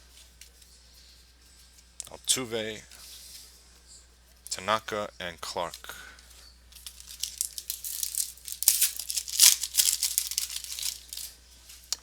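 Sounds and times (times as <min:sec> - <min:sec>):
foil wrapper crinkling and tearing: 0:06.8 - 0:11.4
cards rustling and clicking: 0:06.8 - 0:12.0.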